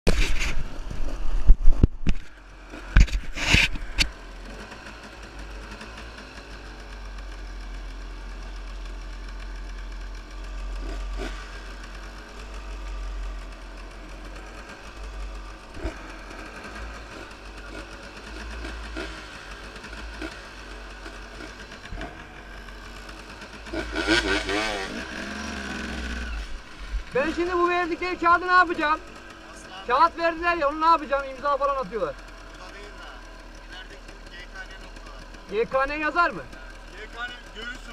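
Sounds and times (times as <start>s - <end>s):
motorcycle engine idling: 0.1s - 37.9s.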